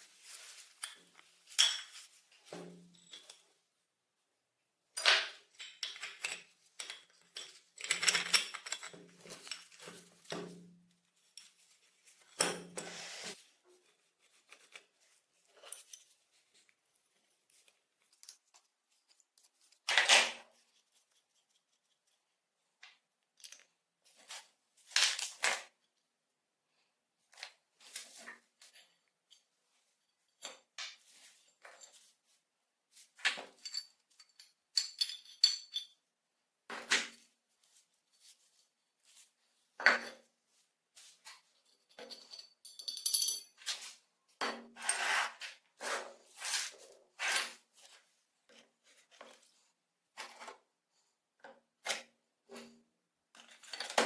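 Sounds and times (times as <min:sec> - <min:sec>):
metal tools clinking: 0:33.5 - 0:36.0, 0:41.6 - 0:43.8.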